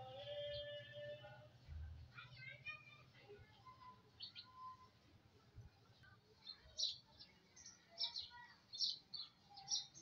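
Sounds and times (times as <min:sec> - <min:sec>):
small birds chirping: 0:02.2 - 0:10.0.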